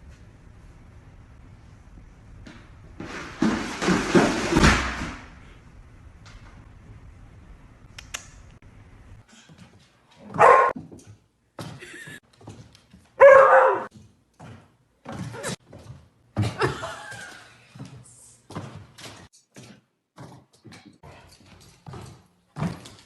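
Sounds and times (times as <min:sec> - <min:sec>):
dog barking: 0:10.3 - 0:10.8, 0:13.2 - 0:13.9.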